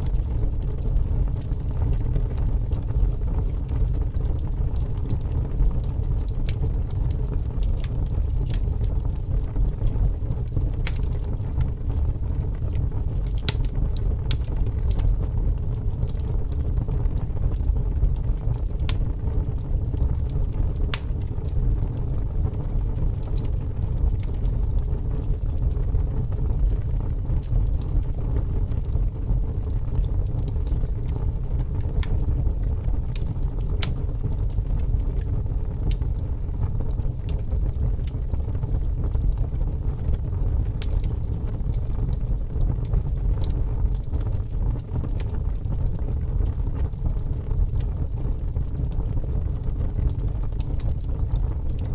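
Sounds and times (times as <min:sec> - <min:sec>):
fire crackling and popping: 0:00.0 - 0:51.9
fire rumbling: 0:00.0 - 0:51.9.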